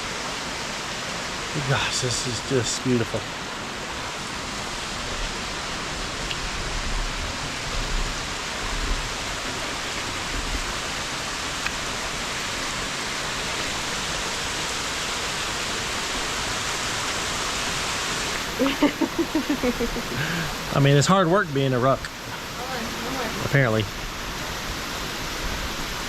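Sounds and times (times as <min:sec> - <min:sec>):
waterfall pouring: 0:09.0 - 0:24.0.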